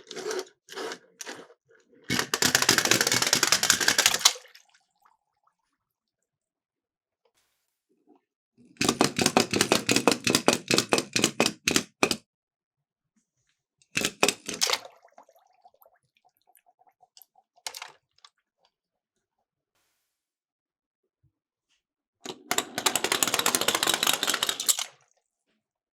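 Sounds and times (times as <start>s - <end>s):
toy cars clattering: 2.1s - 4.4s, 22.3s - 25.0s.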